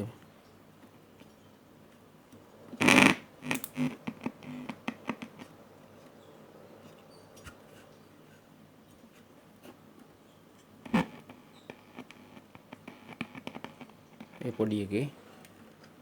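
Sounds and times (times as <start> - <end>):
faint low room noise: 0.0 - 16.0
stray ticks: 2.8 - 5.5
light clicks and scratches: 6.8 - 16.0.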